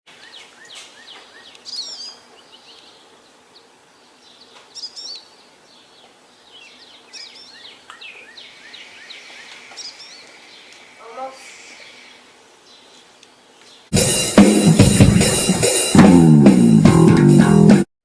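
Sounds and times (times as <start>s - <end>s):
songbirds chirping: 0.1s - 14.0s.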